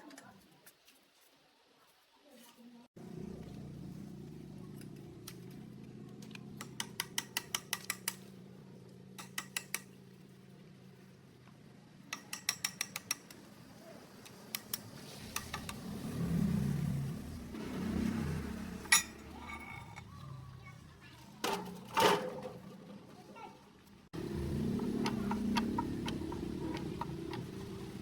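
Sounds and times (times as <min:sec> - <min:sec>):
low mechanical hum: 0:03.0 - 0:07.0, 0:24.1 - 0:28.0.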